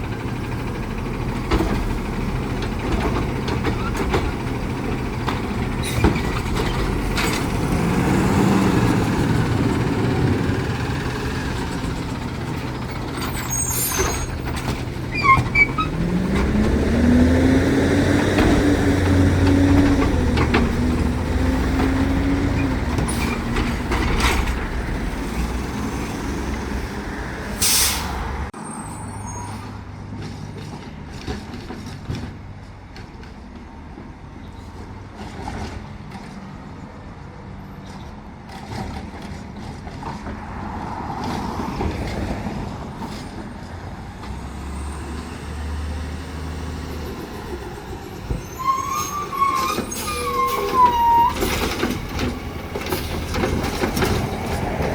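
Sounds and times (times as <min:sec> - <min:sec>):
garbage truck engine running: 0:00.0 - 0:27.7
air brake hiss: 0:27.5 - 0:28.3.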